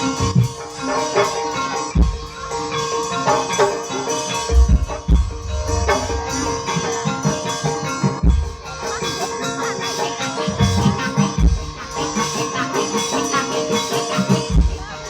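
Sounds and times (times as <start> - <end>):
drums: 0.0 - 15.0
struck metal percussion: 0.0 - 15.0
steady held tone: 4.3 - 9.0
heavy low strokes: 4.5 - 7.4.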